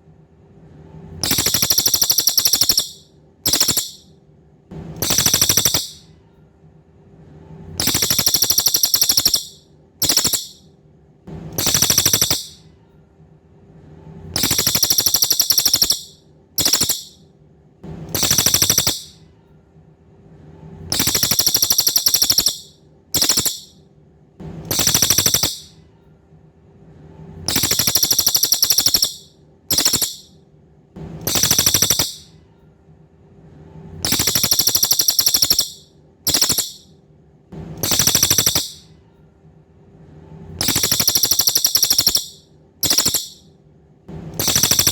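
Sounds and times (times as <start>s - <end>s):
faint steady hum: 0.0s - 44.9s
songbird trilling: 1.2s - 4.0s, 5.0s - 6.0s, 7.8s - 10.6s, 11.6s - 12.6s, 14.4s - 17.2s, 18.2s - 19.1s, 20.9s - 23.7s, 24.7s - 25.7s, 27.5s - 30.3s, 31.3s - 32.3s, 34.1s - 36.8s, 37.8s - 38.8s, 40.6s - 43.4s, 44.4s - 44.9s.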